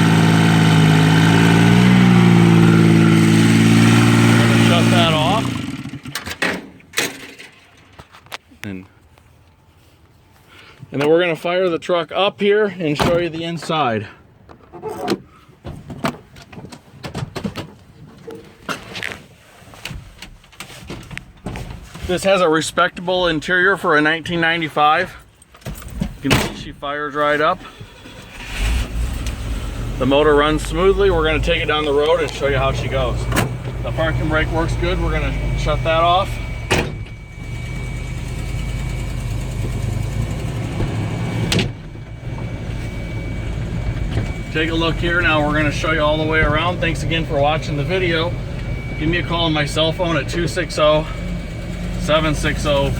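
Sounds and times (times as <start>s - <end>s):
truck engine idling: 0.0s - 6.1s, 27.8s - 52.9s.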